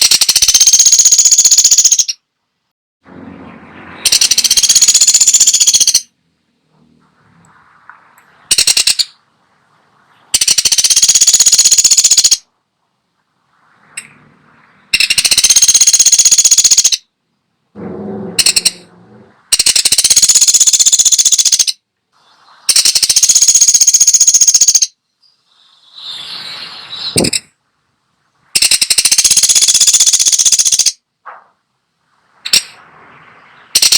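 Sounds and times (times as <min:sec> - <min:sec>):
woodpecker rattling call: 0:00.0 - 0:02.2, 0:04.0 - 0:06.1, 0:08.5 - 0:09.2, 0:10.2 - 0:12.5, 0:14.9 - 0:17.1, 0:18.2 - 0:18.8, 0:19.5 - 0:21.8, 0:22.7 - 0:26.2, 0:27.0 - 0:27.5, 0:28.5 - 0:31.0, 0:32.4 - 0:32.8, 0:33.6 - 0:33.9.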